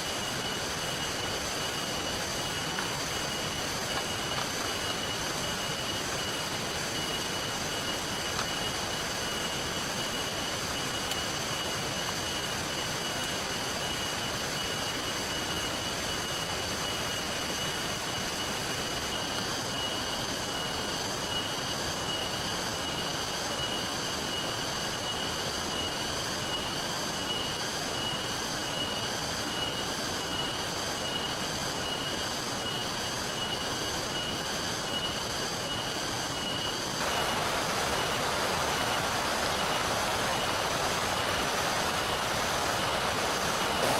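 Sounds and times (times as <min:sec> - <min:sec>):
steady rain: 0:00.0 - 0:43.9
flowing river water: 0:36.8 - 0:43.9.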